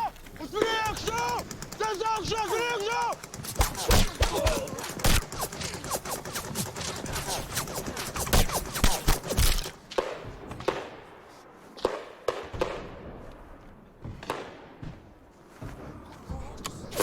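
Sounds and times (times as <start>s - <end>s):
rifle and machine-gun fire: 0.5s - 11.2s.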